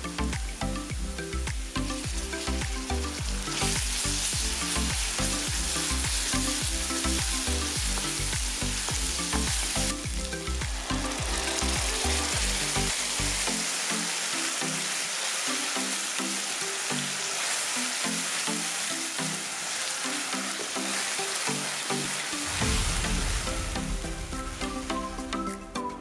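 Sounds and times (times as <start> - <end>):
background music with low beat: 0.0 - 13.9, 22.0 - 26.0
onions sizzling in hot oil: 0.2 - 24.1.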